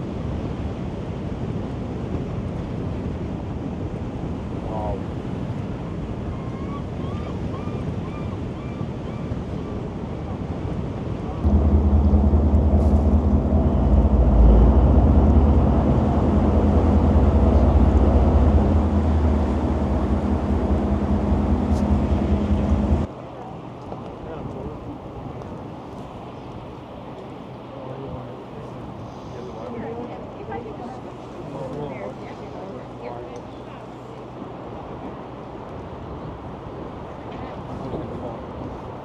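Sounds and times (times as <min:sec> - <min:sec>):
wind and water rushing: 0:00.0 - 0:23.8
boat engine low drone: 0:09.3 - 0:39.0.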